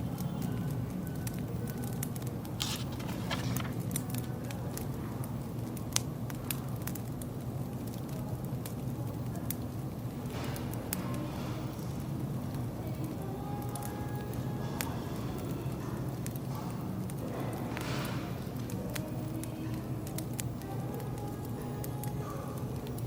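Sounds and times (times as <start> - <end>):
low steady background noise: 0.0 - 23.0
wood fire crackling: 0.0 - 23.0.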